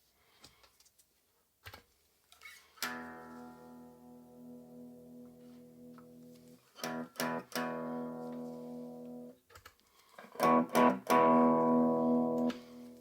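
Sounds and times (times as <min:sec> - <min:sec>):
out of tune guitar strumming: 0:02.9 - 0:09.3, 0:10.4 - 0:13.0.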